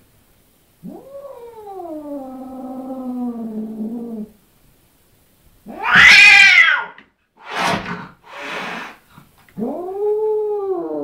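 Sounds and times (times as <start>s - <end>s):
cat yowling: 5.7s - 7.0s
cat hissing: 5.7s - 9.2s.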